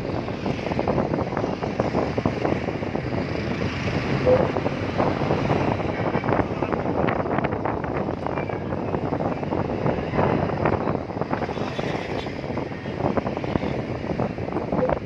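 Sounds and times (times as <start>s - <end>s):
traffic rumble: 0.0s - 15.0s
wind buffeting microphone: 0.0s - 15.0s
short tone: 4.2s - 4.5s.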